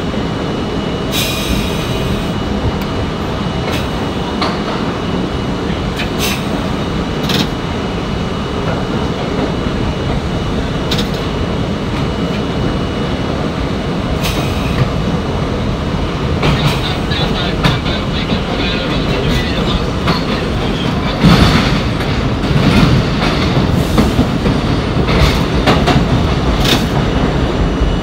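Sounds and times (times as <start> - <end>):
train rumbling on rails: 0.0 - 28.0.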